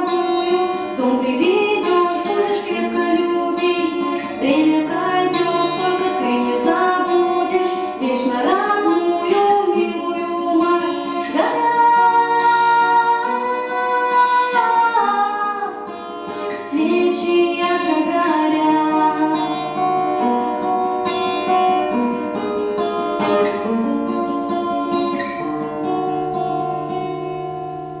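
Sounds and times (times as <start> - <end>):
woman singing: 0.0 - 20.8
acoustic guitar: 0.0 - 28.0.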